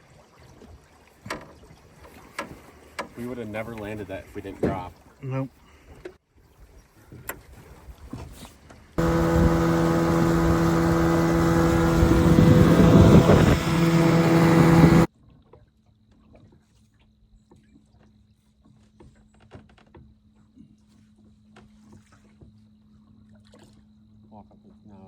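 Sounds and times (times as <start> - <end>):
boat motor running: 9.0 - 15.1
faint steady hum: 9.0 - 15.1.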